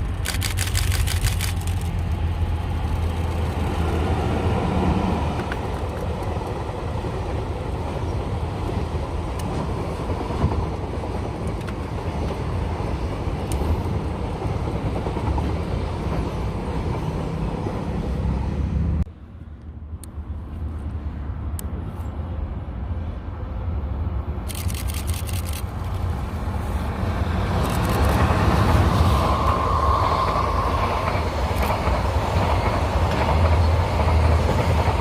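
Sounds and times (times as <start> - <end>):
sharp clicks: 0.0 - 2.2, 24.5 - 26.0
train wheels clattering on rails: 27.5 - 35.0.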